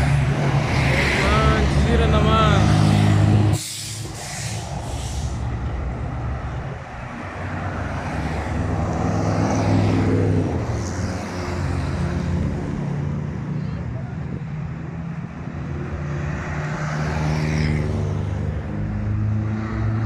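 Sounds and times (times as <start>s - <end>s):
short hisses: 3.6s - 5.5s.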